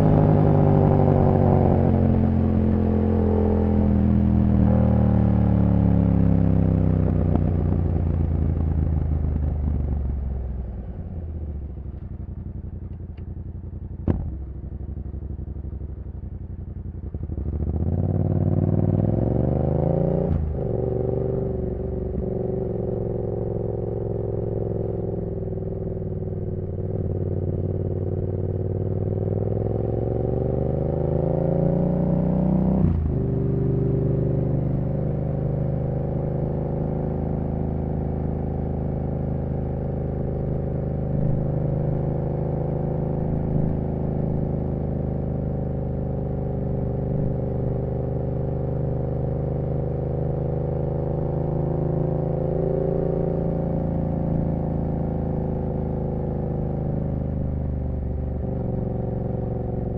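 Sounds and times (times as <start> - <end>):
motorcycle engine: 32.1 - 59.9.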